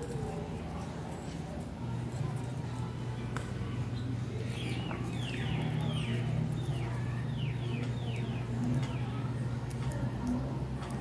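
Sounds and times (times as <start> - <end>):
low steady hum: 0.0 - 11.0
bird chirping: 3.9 - 9.2
plastic toys clicking: 9.6 - 11.0.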